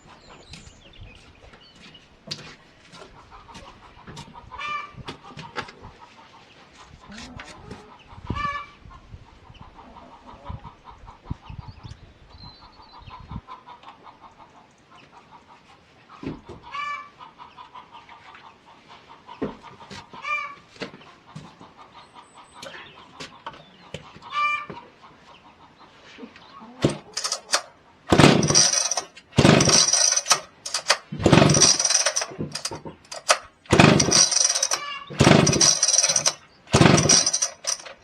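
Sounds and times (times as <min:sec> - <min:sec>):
chickens clucking: 0:02.9 - 0:12.1, 0:13.0 - 0:29.3, 0:34.3 - 0:38.0
chicken squawking: 0:04.5 - 0:05.0, 0:24.3 - 0:24.7.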